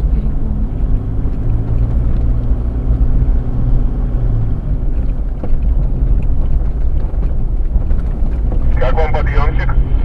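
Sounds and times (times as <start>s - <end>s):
vehicle engine droning: 0.0s - 10.0s.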